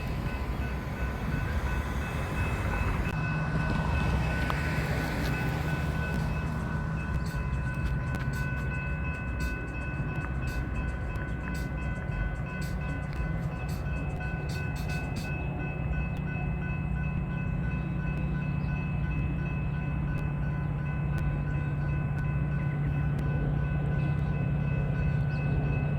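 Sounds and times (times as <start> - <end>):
sharp rail clicks: 0.0 - 15.4
train running on rails: 0.0 - 25.9.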